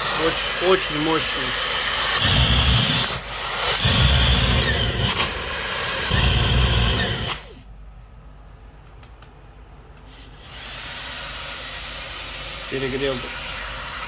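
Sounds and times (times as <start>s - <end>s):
vacuum motor whining: 0.0s - 7.6s.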